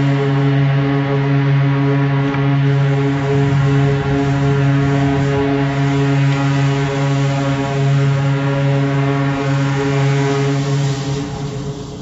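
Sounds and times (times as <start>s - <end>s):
low running rumble: 0.0s - 12.0s
train drone: 0.0s - 12.0s.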